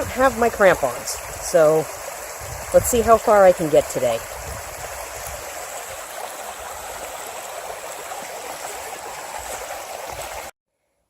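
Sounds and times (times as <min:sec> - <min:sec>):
stream running: 0:00.0 - 0:10.6.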